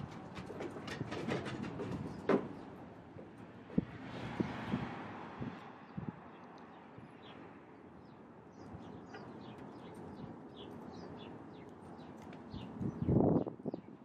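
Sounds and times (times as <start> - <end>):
small birds chirping: 5.5 - 14.0.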